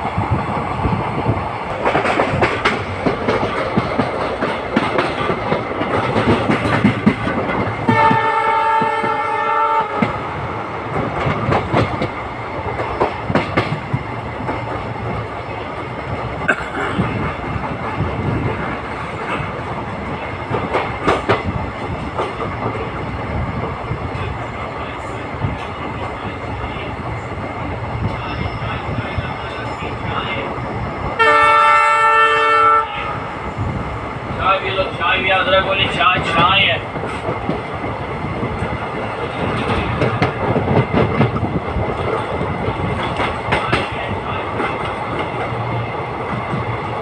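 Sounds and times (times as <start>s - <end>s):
train wheels rumbling on rails: 0.0s - 47.0s
locomotive horn: 7.9s - 10.2s, 31.2s - 33.2s.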